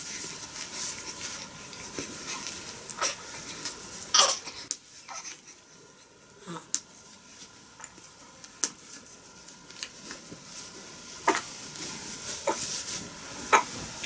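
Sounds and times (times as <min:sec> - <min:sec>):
faint rustling: 0:08.8 - 0:14.0.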